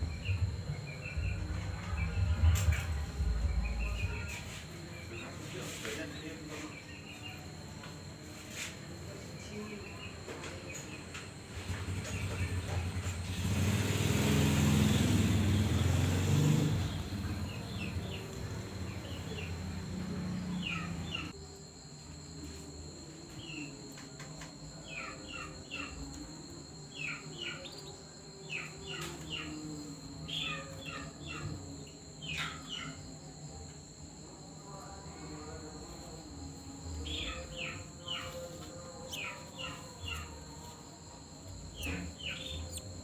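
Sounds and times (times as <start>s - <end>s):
loud low noise: 0.0s - 5.1s
nestlings begging with high chirps: 11.6s - 21.4s, 24.8s - 26.3s, 26.9s - 33.1s, 36.9s - 43.0s.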